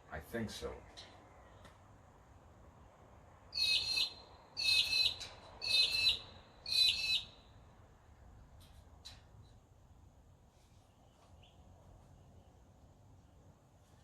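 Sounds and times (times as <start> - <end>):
bird calling: 3.6 - 7.5.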